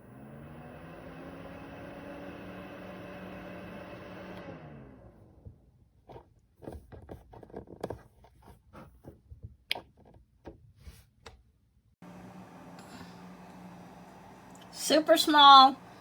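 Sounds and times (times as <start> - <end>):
steady low hum: 12.0 - 16.0.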